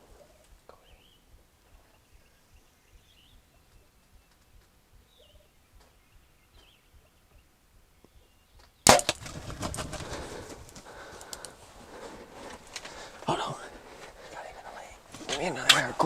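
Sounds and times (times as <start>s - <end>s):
faint bird chirps: 0.0s - 8.8s
rustling and thumping: 8.9s - 11.4s.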